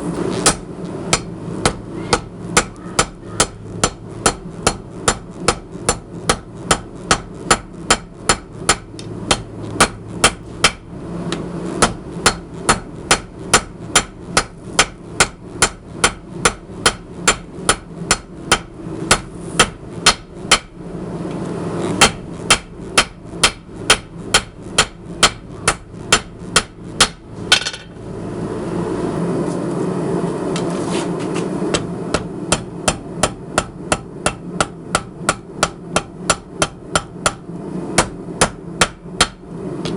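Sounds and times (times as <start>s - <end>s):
hammer striking metal on anvil: 0.4s - 20.8s, 22.0s - 28.0s, 31.7s - 37.4s, 38.0s - 39.9s.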